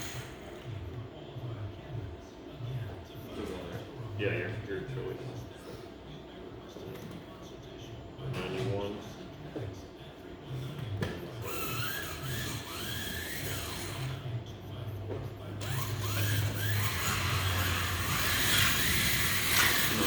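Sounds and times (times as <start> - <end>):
slot car motors whining: 0.0 - 0.8, 11.4 - 14.8, 15.4 - 20.0.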